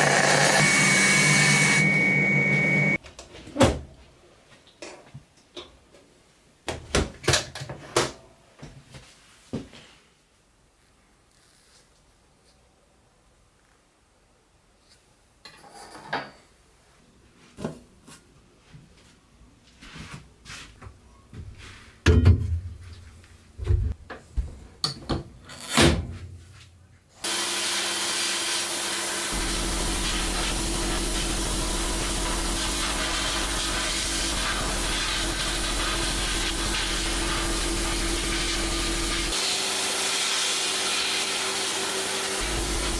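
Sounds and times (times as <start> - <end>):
sandblaster air blast hiss: 27.2 - 42.9.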